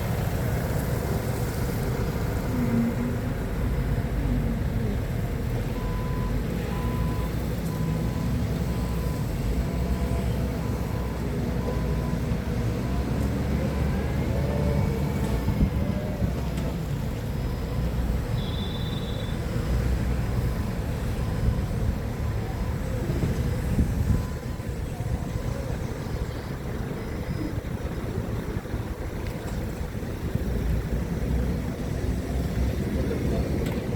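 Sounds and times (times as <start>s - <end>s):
forklift engine rumbling: 0.0s - 33.9s
short tone beeping: 18.4s - 19.4s.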